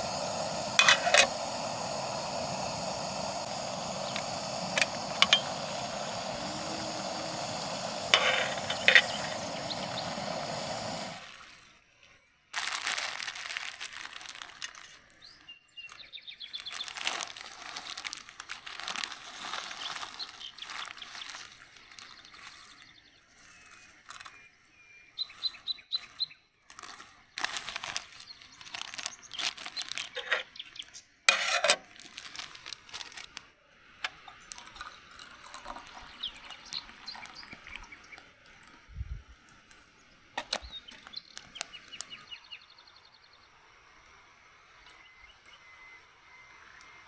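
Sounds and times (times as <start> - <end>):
rustling of things handled: 12.6 - 15.2, 16.6 - 22.6, 26.7 - 30.6, 31.3 - 33.4.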